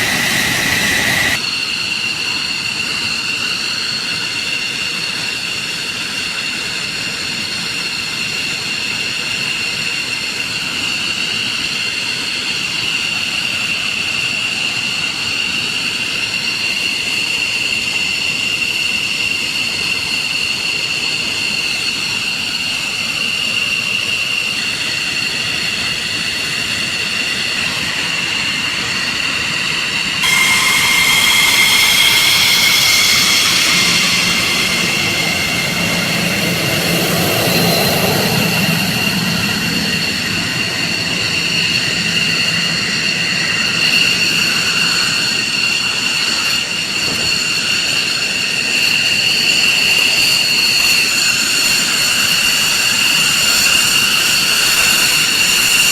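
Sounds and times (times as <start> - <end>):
jet exhaust rush: 0.0 - 1.7, 21.5 - 55.9
jet engines whining: 0.0 - 55.9.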